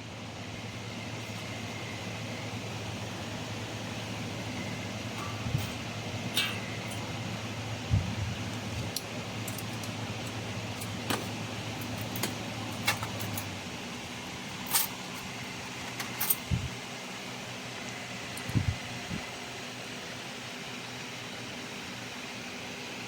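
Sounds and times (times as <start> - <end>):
low hum: 0.0 - 15.2
welding machine fan hum: 0.0 - 23.0.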